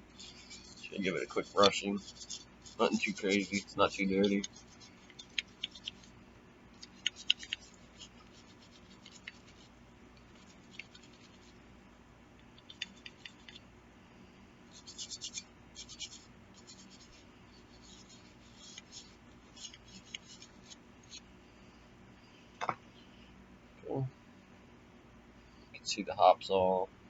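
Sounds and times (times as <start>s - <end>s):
bristle brush scrubbing metal: 0.0s - 6.2s, 6.8s - 11.6s, 14.7s - 21.2s.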